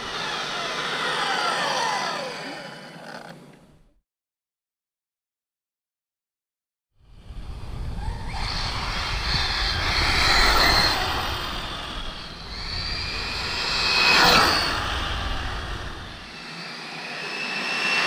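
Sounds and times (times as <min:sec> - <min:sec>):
electric rc car whine: 0:00.0 - 0:03.7, 0:07.1 - 0:18.0
low rumble of tyres and wind: 0:07.0 - 0:16.5.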